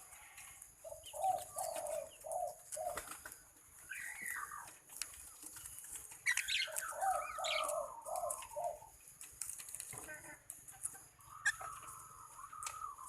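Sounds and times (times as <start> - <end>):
bird wavering call: 11.2 - 13.0.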